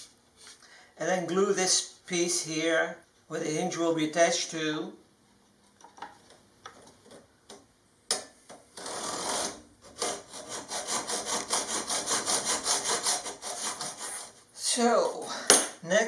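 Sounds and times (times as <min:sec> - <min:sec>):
hacksaw cutting metal: 0:08.8 - 0:14.4.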